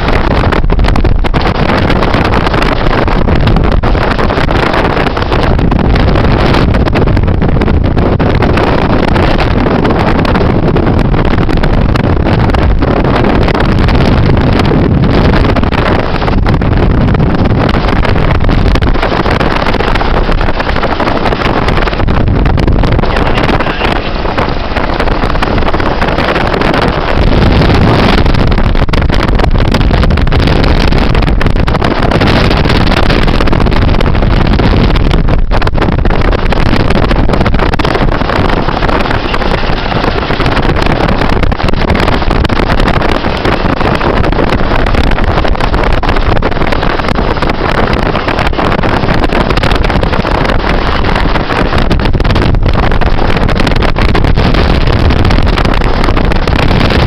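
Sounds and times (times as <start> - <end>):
helicopter engine and rotors: 14.4 - 28.8.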